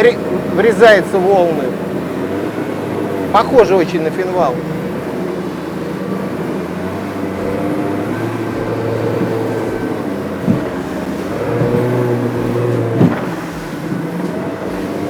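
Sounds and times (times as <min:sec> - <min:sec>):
outboard motor running: 0:00.0 - 0:15.0
hull thump: 0:04.8 - 0:15.0.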